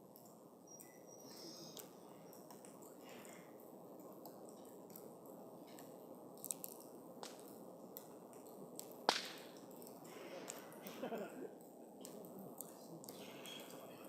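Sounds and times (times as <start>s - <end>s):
campfire hissing and crackling: 0.0s - 14.0s
loud pop of burning wood: 9.0s - 9.6s.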